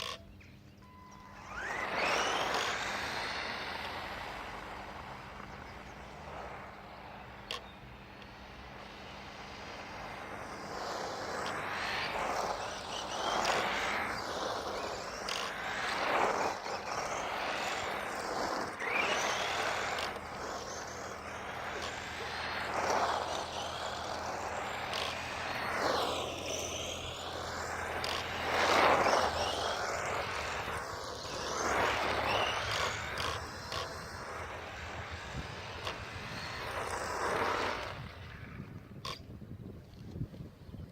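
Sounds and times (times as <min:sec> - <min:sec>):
radio-controlled buggy motor: 0:00.0 - 0:00.3, 0:01.1 - 0:39.3.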